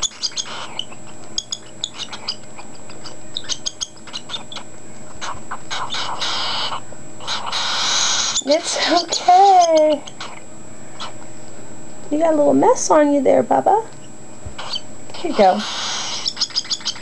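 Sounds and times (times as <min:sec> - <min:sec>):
bird chick squeaky ticks: 0:00.0 - 0:04.7, 0:14.6 - 0:17.0
raspy hissing begging calls: 0:00.0 - 0:10.4, 0:14.6 - 0:17.0.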